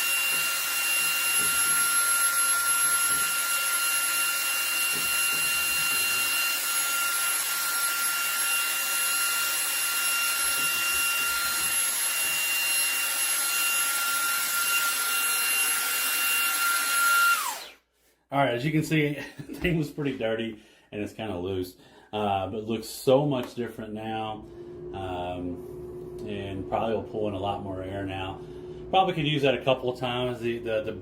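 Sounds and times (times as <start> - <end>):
vacuum cleaner whining: 0.0 - 17.8, 24.0 - 31.0.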